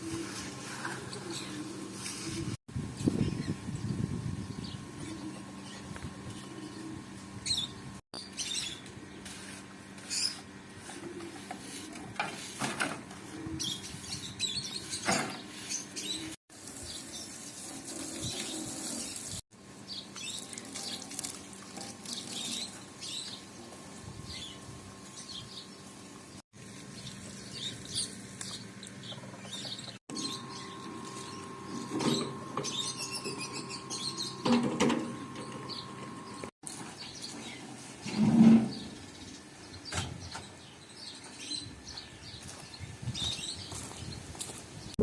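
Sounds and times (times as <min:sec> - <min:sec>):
birds chirping: 0:26.9 - 0:37.7, 0:38.6 - 0:45.0.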